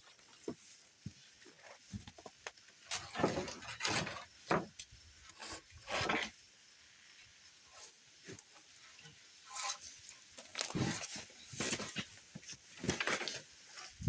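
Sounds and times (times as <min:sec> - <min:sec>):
board scraping: 0:02.9 - 0:04.7, 0:05.4 - 0:06.4, 0:10.6 - 0:12.1.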